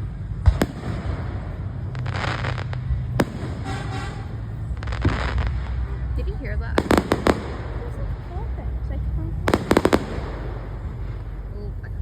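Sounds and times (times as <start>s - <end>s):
fireworks hissing crackle: 0.0s - 8.5s, 9.5s - 11.7s
fireworks bangs: 0.0s - 12.0s
low rumble: 0.0s - 12.0s.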